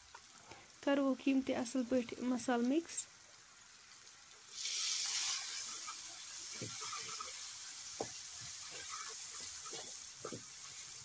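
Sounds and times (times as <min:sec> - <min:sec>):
vegetables sizzling in a pan: 0:00.0 - 0:11.0
wooden spatula scraping pan: 0:08.0 - 0:11.0.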